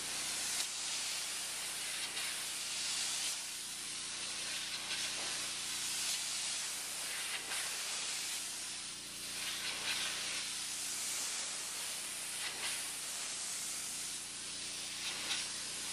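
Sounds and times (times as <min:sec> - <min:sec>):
pressure washer spray hissing: 0:00.0 - 0:15.9.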